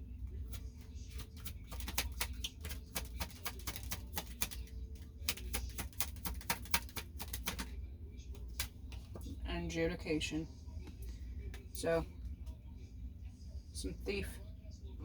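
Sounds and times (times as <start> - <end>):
cards shuffling: 1.1 - 7.7.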